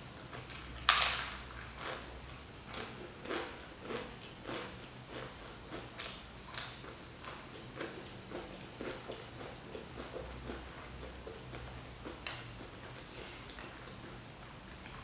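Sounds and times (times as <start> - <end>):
chewing and biting food: 2.7 - 15.0.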